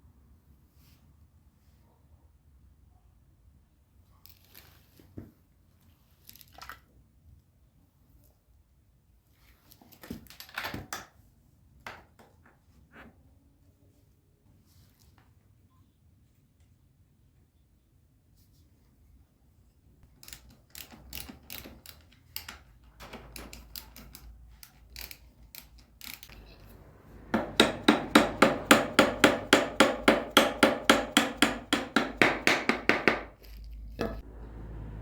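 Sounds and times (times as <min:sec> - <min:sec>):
hammer blows with ringing: 0:27.2 - 0:30.3.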